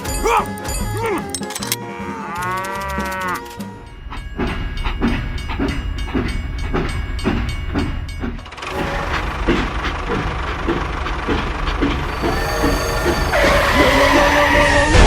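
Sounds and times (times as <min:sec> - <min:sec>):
rhythmic chugging: 0:00.0 - 0:01.8, 0:02.4 - 0:15.0
cattle mooing: 0:01.2 - 0:03.6.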